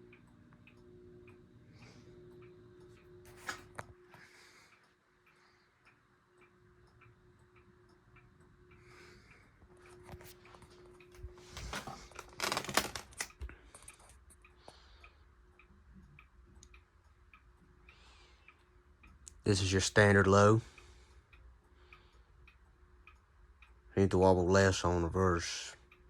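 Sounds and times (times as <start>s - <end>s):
ceiling fan motor hum: 0.0s - 26.0s
clock ticking: 0.0s - 26.0s
sharp clicks and knocks: 10.1s - 14.2s.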